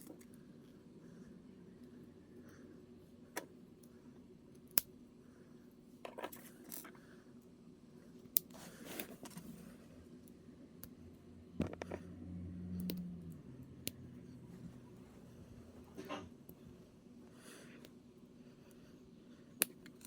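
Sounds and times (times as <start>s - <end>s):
low hum: 9.2s - 17.7s.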